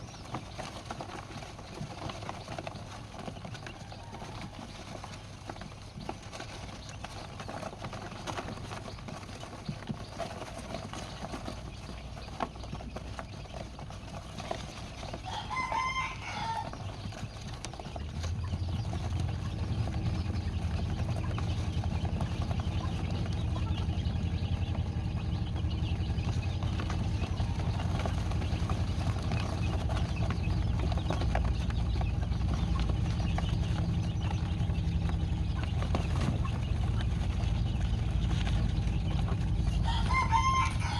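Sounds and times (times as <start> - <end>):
steady low hum: 0.0 - 40.9
rooster crowing: 3.7 - 5.1, 15.2 - 17.0, 39.8 - 40.9.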